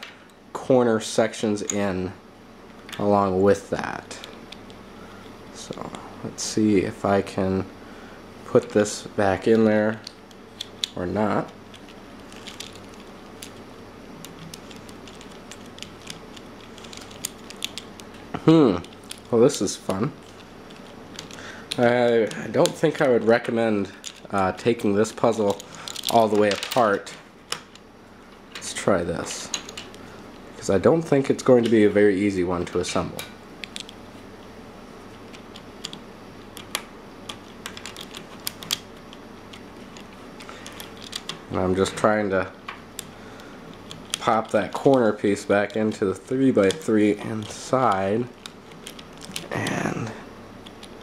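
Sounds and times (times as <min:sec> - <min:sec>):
plastic puzzle pieces clicking: 0:14.2 - 0:18.2, 0:35.3 - 0:41.4, 0:46.6 - 0:49.8.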